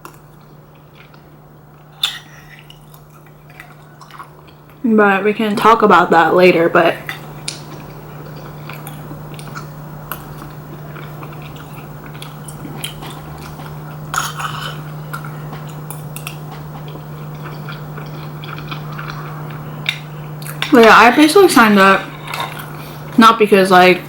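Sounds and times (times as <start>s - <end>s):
person chewing: 0.0s - 4.8s, 7.2s - 20.7s
steady low hum: 0.0s - 24.0s.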